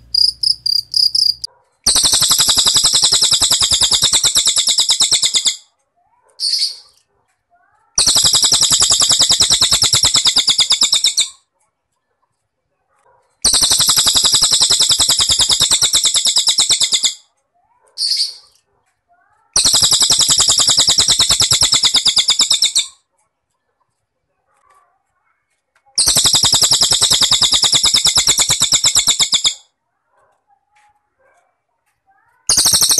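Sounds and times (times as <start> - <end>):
pulsed cricket trills: 0.0 - 5.6, 8.0 - 11.2, 13.5 - 17.1, 19.6 - 22.9, 26.0 - 29.6, 32.5 - 32.9.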